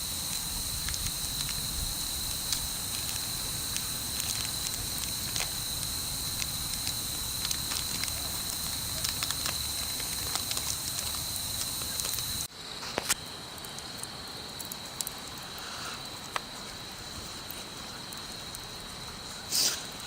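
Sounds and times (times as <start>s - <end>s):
wood bonfire crackling: 0.0s - 20.0s.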